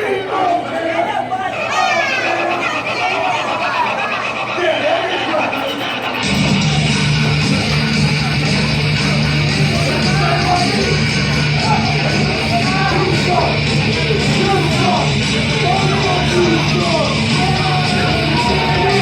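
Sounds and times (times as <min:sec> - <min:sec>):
yelled vocals: 0:00.0 - 0:19.0
heavy rock music: 0:06.1 - 0:19.0.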